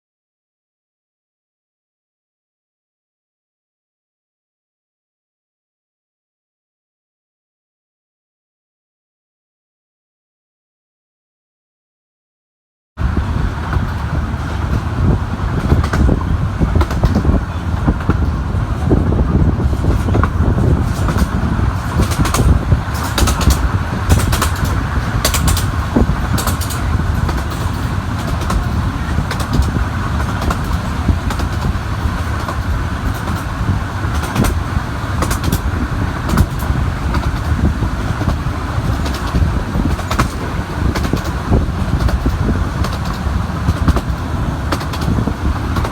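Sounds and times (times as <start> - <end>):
miniature train rumbling: 13.0 - 45.9.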